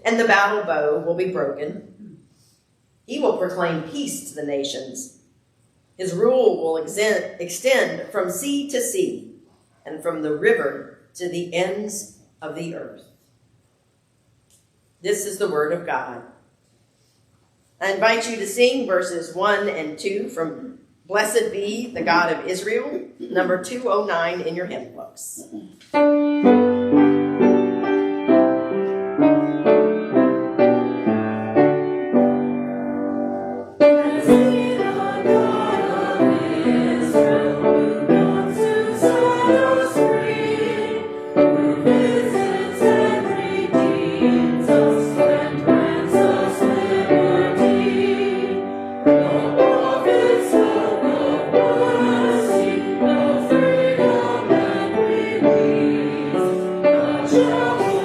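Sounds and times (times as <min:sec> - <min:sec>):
piano: 0:25.9 - 0:58.0
congregation singing a hymn: 0:26.5 - 0:58.0.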